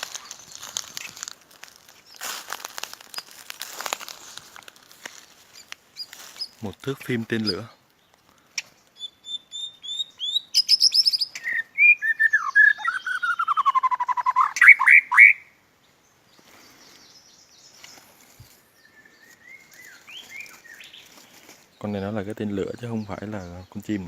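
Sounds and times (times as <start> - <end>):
bird singing whistles and trills: 9.0 - 15.5.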